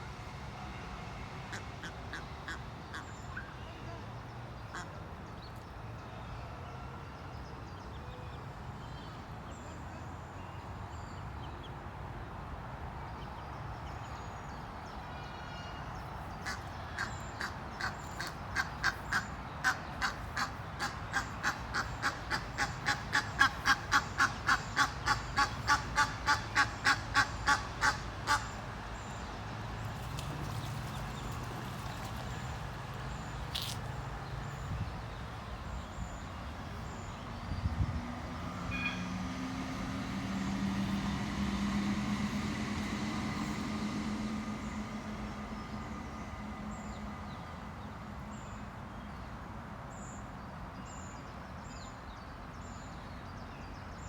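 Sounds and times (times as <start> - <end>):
duck quacking: 16.5 - 28.5.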